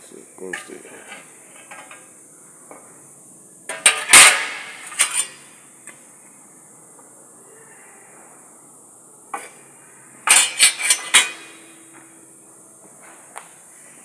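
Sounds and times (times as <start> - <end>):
sheet metal clanking: 0.5 - 2.1, 3.7 - 5.5, 10.3 - 11.8.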